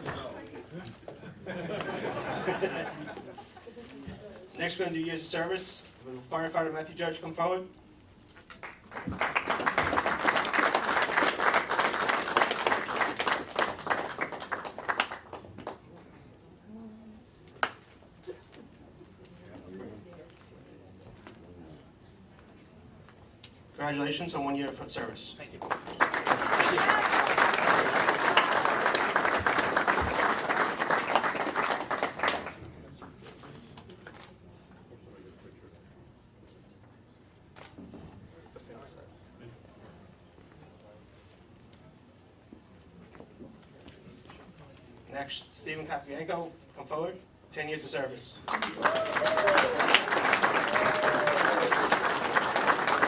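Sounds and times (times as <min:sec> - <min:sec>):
audience clapping: 0:08.5 - 0:15.9, 0:25.5 - 0:33.6, 0:48.4 - 0:53.0.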